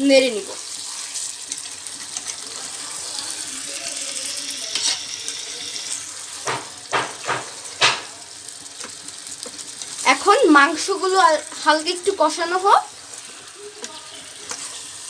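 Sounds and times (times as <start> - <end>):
chicken sizzling in hot oil: 0.0 - 15.0
spoon knocking against pan: 6.4 - 8.2.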